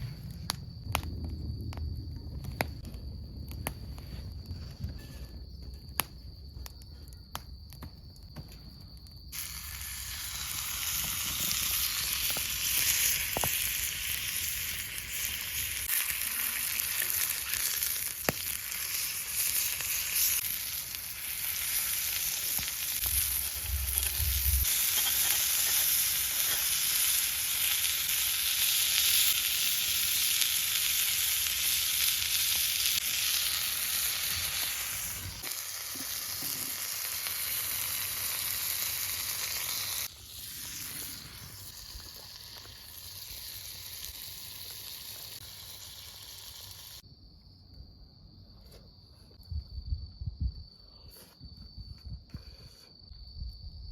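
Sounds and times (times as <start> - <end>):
steak sizzling in a skillet: 9.4 - 47.0.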